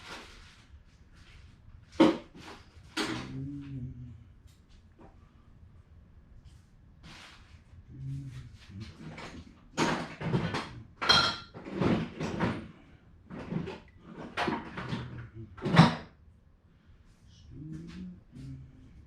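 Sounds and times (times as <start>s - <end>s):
rough scraping and rattling: 8.3s - 16.0s.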